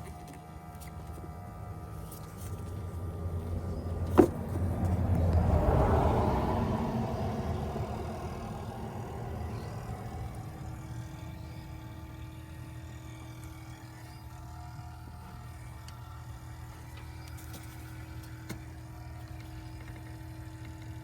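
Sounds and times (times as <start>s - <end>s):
steady low hum: 0.0s - 21.0s
vehicle passing by: 2.6s - 12.9s.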